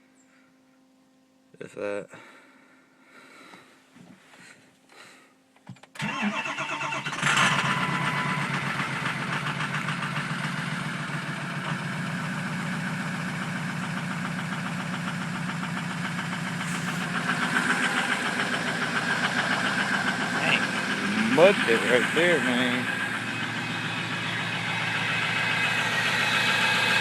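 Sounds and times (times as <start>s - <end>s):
diesel engine starting and idling: 5.8s - 27.0s.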